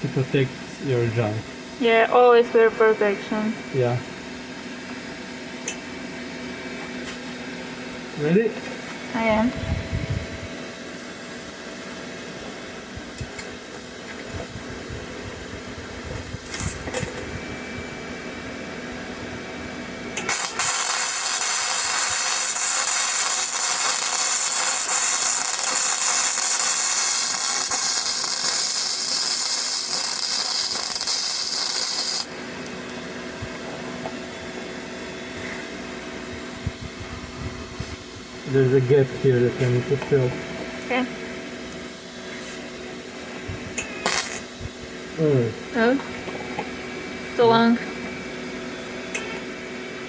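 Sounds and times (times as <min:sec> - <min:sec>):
welding arc crackling and hissing: 0:20.2 - 0:32.8, 0:43.5 - 0:45.8.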